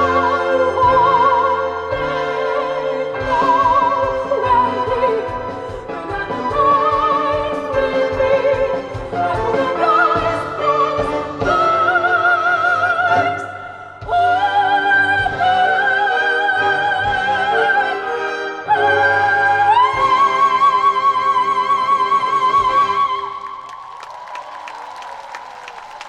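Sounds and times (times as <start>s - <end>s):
orchestral accompaniment: 0.0s - 23.3s
operatic singing voice: 0.0s - 23.7s.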